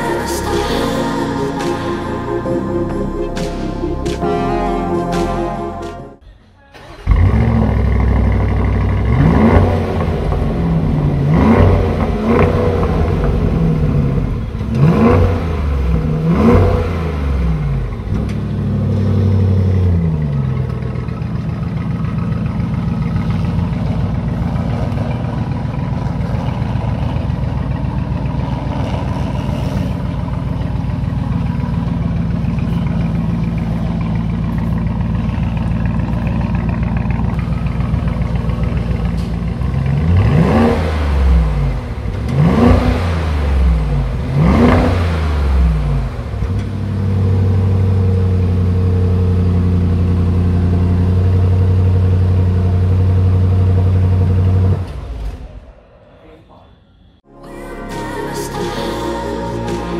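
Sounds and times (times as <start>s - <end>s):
car engine idling: 5.8s - 55.8s
car engine revving: 6.8s - 55.6s.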